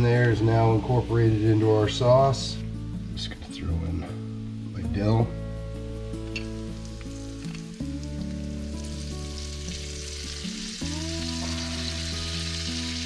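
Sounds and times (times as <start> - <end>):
background music of held notes: 0.0 - 13.0
sauce sizzling in a pan: 5.8 - 13.0.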